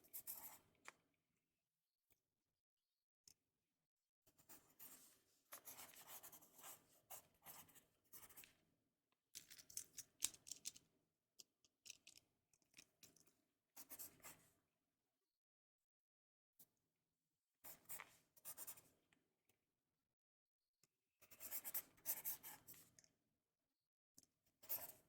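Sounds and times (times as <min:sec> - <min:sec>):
pen scratching on paper: 0:00.0 - 0:00.6, 0:04.4 - 0:08.5, 0:17.7 - 0:18.9, 0:21.3 - 0:22.8, 0:24.6 - 0:25.0.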